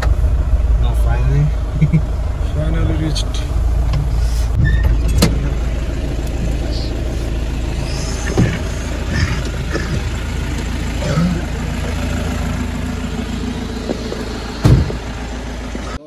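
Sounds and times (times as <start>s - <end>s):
car engine rumbling in cabin: 0.0s - 16.0s
loud thump: 13.9s - 15.2s.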